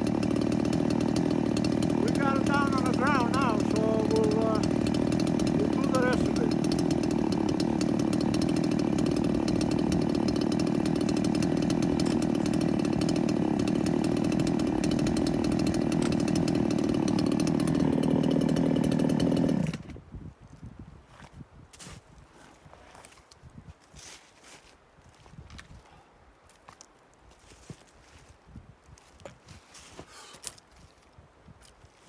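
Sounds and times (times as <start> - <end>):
chainsaw running: 0.0 - 20.0.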